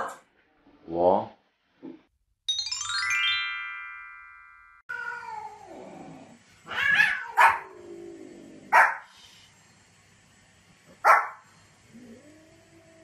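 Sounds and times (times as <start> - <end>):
bright chime: 2.5 - 4.8
cat meowing: 4.9 - 5.7, 6.6 - 7.6
dog barking: 7.0 - 7.7, 8.7 - 9.1, 11.0 - 11.4.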